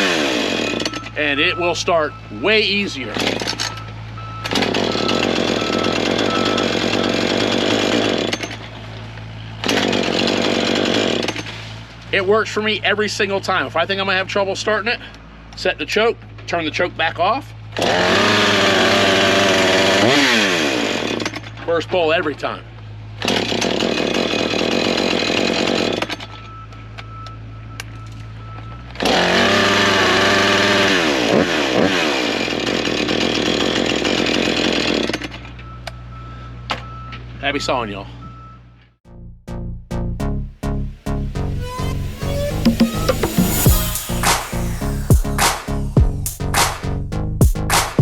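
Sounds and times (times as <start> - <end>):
chainsaw revving: 0.0 - 1.2, 3.1 - 3.6, 4.5 - 8.7, 9.4 - 11.6, 17.7 - 21.6, 23.2 - 26.2, 29.0 - 35.4, 41.9 - 46.0.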